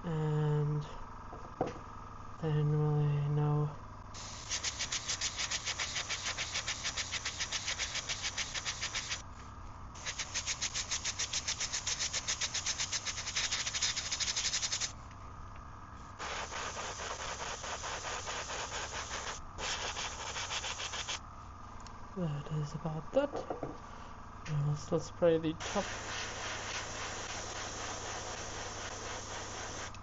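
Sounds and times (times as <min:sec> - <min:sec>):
steady low hum: 0:00.0 - 0:30.0
airbrush spraying hiss: 0:04.2 - 0:09.2, 0:10.0 - 0:15.0, 0:16.2 - 0:21.2, 0:25.6 - 0:30.0.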